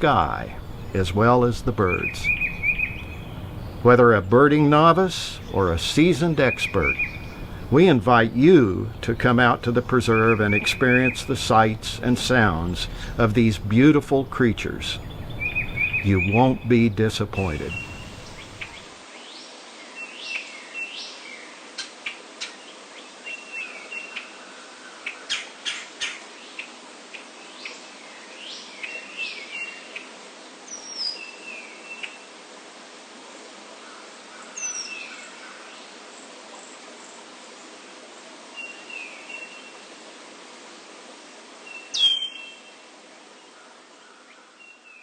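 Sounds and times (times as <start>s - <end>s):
bird chip notes: 0.0s - 18.8s
songbird rising phrase: 0.0s - 21.6s, 38.5s - 39.9s, 41.6s - 45.0s
high thin down-slurred bird calls: 0.0s - 32.4s, 33.8s - 37.8s, 38.5s - 40.0s, 41.6s - 45.0s.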